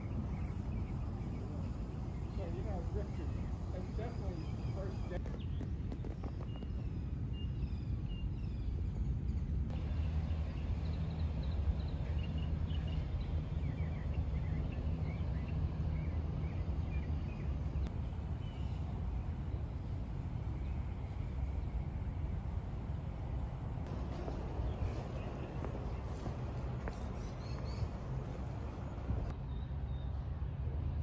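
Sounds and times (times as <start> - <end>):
small birds chirping: 0.0 - 30.2
low steady rumble: 6.6 - 31.0.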